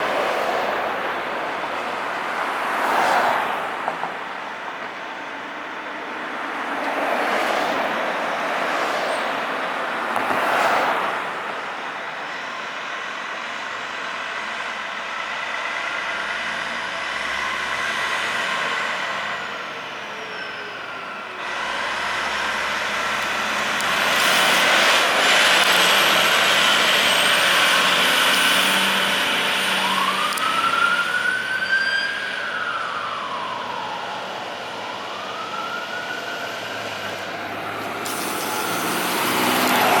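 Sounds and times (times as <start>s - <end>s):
fire engine driving by: 0.0s - 40.0s
siren wailing: 16.4s - 40.0s.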